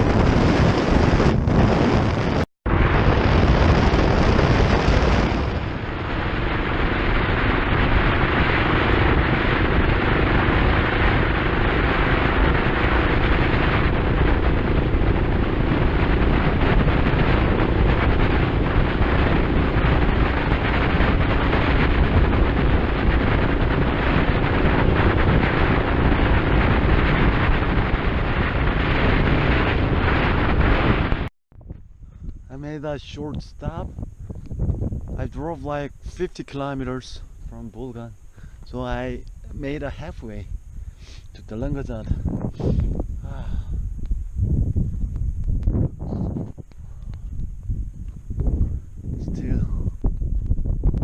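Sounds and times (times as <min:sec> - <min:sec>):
motorcycle engine drone: 0:00.0 - 0:51.0
wind rush on microphone: 0:00.0 - 0:51.0.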